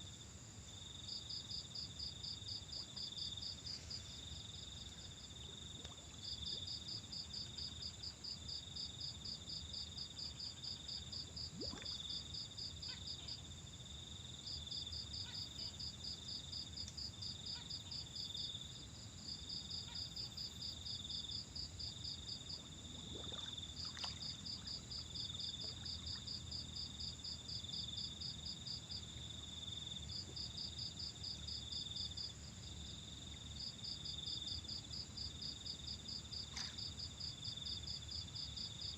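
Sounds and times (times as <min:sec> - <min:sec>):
insects droning: 0:00.0 - 0:38.9
cricket chirping pulses: 0:00.1 - 0:18.8, 0:19.5 - 0:38.9.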